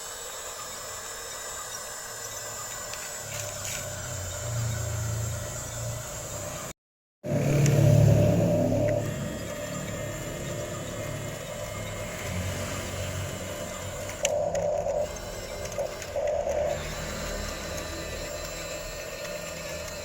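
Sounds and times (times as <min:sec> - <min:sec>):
electric motor whining: 0:00.0 - 0:20.0
low background hum: 0:07.3 - 0:20.0.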